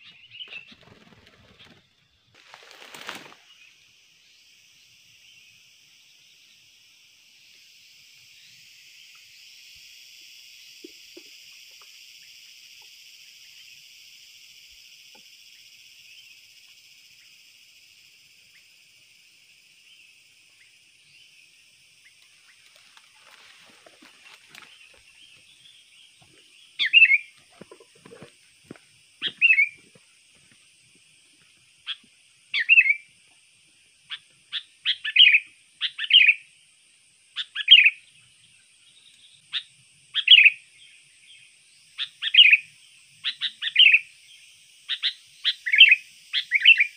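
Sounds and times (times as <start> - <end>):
high insect buzz: 0.0 - 46.9
bulbul chirping calls: 26.8 - 28.3, 29.2 - 29.8, 32.6 - 33.0, 34.1 - 36.4, 37.4 - 38.0, 39.5 - 40.6, 42.0 - 44.1.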